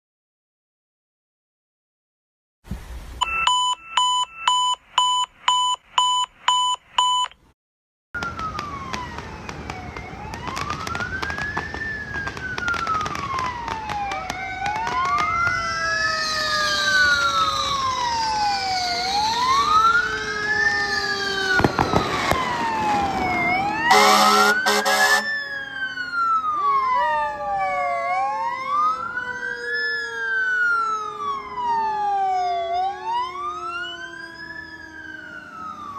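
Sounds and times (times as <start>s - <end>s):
short siren beeps: 3.2s - 7.4s, 23.4s - 25.3s
electronic siren wail: 8.2s - 35.9s
siren tone winding down: 15.6s - 35.9s
loud horn blast: 23.8s - 25.4s.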